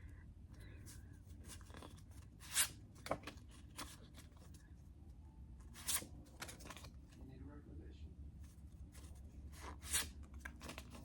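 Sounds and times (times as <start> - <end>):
paper cards rustling and sliding: 1.2 - 4.6, 5.6 - 7.0, 8.5 - 11.0.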